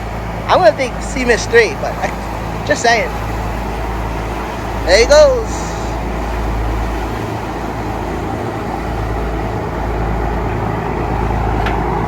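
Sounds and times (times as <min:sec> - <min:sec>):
boat engines rumbling: 0:00.0 - 0:12.0
water noise: 0:00.0 - 0:12.0.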